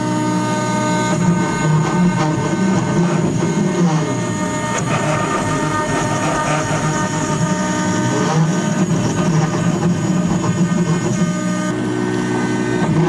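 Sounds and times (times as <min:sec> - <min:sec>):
router bit cutting wood: 0:00.0 - 0:13.0
router spindle whine: 0:00.0 - 0:13.0.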